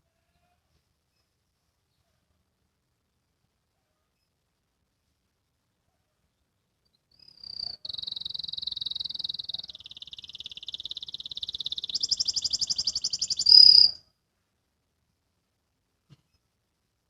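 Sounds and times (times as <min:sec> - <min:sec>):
canary singing trills: 0:07.1 - 0:14.0.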